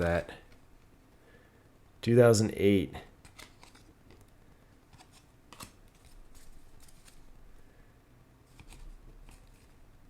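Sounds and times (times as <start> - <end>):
cards clicking and sliding: 3.2 - 4.3, 4.9 - 7.3, 8.5 - 9.8.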